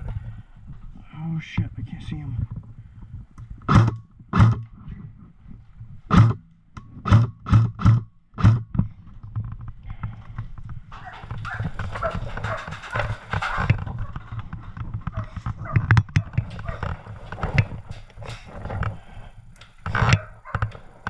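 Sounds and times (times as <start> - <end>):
airsoft gun shots: 3.7 - 4.6, 6.1 - 6.4, 7.0 - 8.6.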